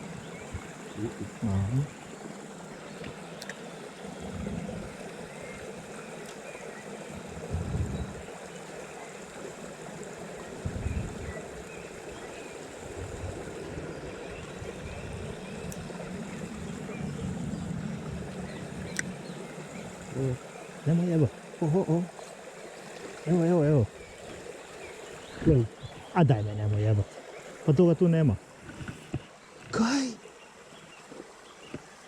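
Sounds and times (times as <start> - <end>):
stream flowing: 0.0 - 32.0
low bumps: 7.2 - 8.3.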